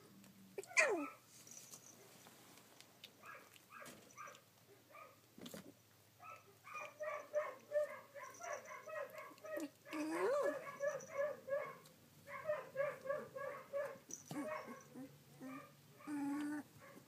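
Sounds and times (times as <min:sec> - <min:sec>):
puppy whimpering: 0:00.6 - 0:01.2, 0:08.3 - 0:11.2, 0:14.2 - 0:16.8.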